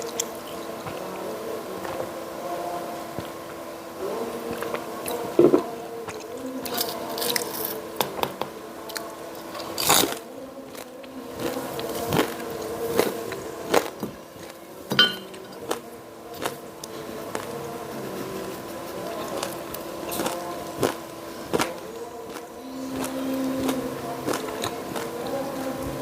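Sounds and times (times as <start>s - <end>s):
crunchy chewing: 0.0s - 2.2s, 2.9s - 26.0s
background hum: 0.0s - 26.0s.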